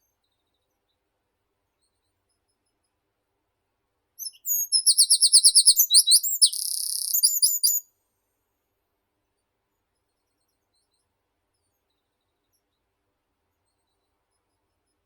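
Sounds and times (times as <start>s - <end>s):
songbird singing: 4.2s - 7.8s.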